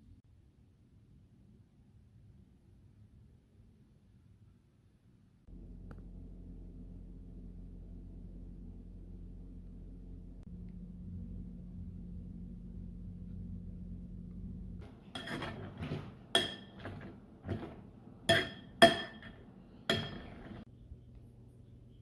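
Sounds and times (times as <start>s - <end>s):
steady low hum: 5.5s - 22.0s.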